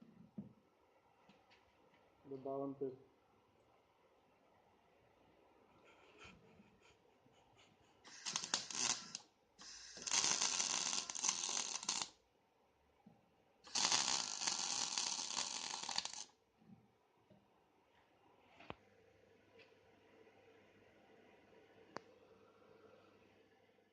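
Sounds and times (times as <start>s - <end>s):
welding arc crackling: 8.1s - 12.2s, 13.7s - 16.3s.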